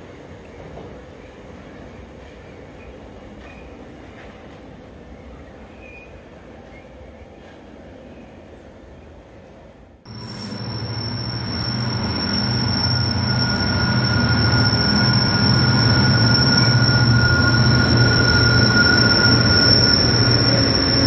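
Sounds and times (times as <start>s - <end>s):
freight train rumbling past: 0.0s - 21.0s
high-pitched wheel squeal: 10.1s - 21.0s.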